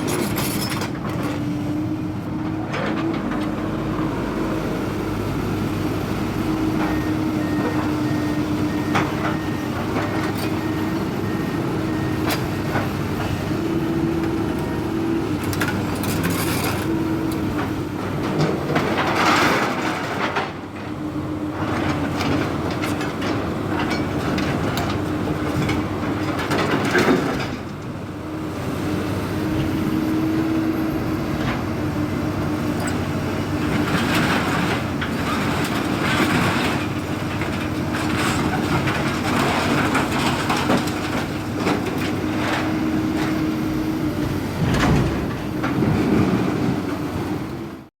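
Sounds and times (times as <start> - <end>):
excavator engine and hydraulics humming: 0.0 - 47.9
knocks and clanks: 44.6 - 46.6.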